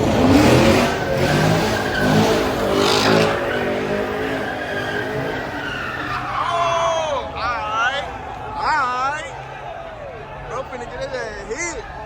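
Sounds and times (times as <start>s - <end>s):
car engine revving hard: 0.0s - 6.2s
tyres squealing: 0.0s - 9.2s.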